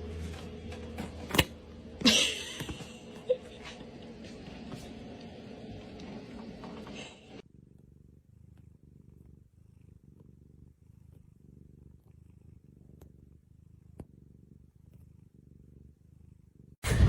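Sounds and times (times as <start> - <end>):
cat purring: 0.0 - 16.8.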